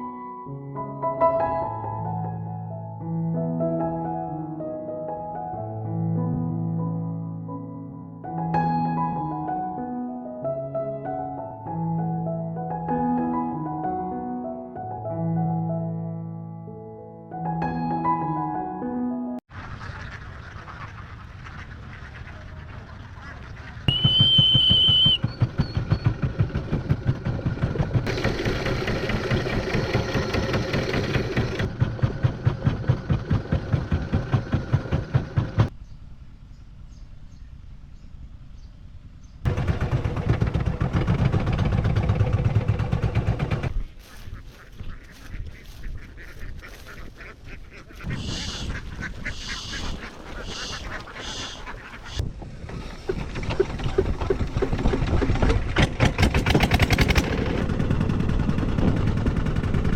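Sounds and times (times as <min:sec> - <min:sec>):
ducks quacking: 0:19.5 - 0:24.2, 0:43.9 - 0:55.2.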